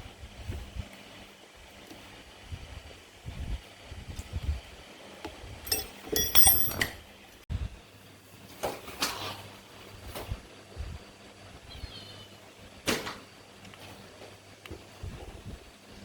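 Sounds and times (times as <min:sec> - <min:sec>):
metal parts knocking and clicking: 0:05.7 - 0:07.0
ringing metallic clinks: 0:05.7 - 0:07.0.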